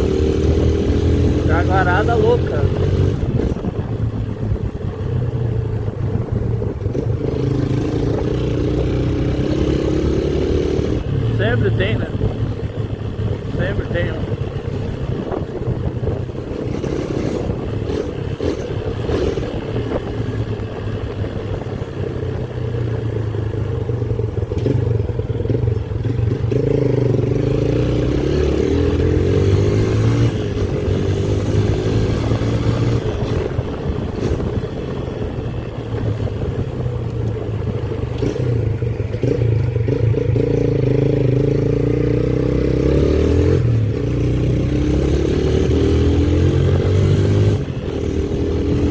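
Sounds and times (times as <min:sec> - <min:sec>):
motorcycle engine running: 0:00.0 - 0:48.9
wind and road noise: 0:00.0 - 0:48.9.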